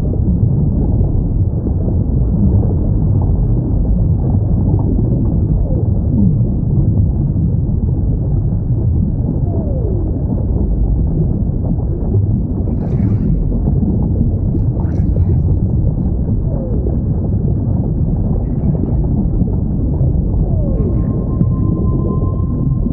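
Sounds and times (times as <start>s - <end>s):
deep rumble: 0.0s - 22.9s
whale moaning: 18.5s - 22.9s
brief high-pitched sound: 20.8s - 22.9s.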